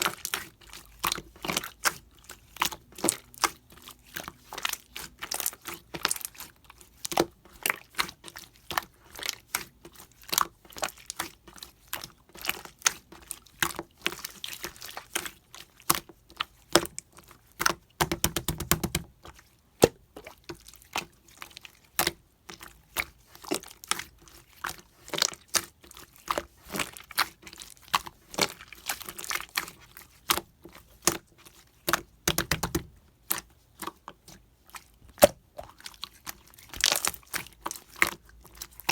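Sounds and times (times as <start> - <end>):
slime popping and squelching: 31.8 - 34.0, 35.1 - 38.7.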